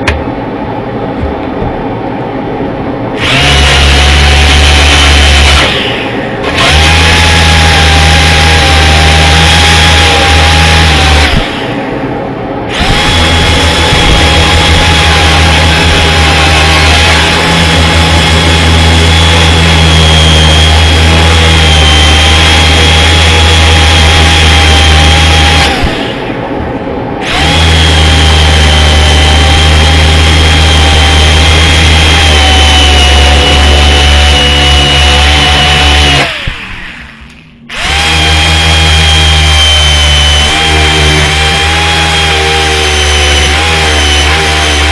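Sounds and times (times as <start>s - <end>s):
electric grinder stripping metal: 3.2s - 12.1s, 12.7s - 26.4s, 27.2s - 44.9s.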